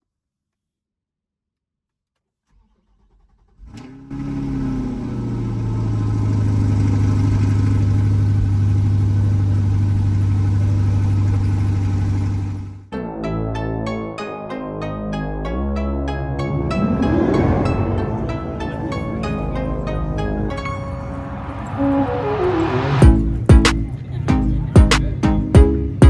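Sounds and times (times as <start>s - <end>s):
car engine cranking: 2.5s - 12.9s
car engine revving and idling: 3.0s - 12.9s.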